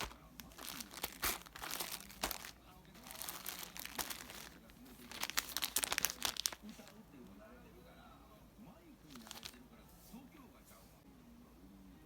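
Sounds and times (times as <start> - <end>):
material crinkling and rustling: 0.0 - 7.0, 9.1 - 9.6.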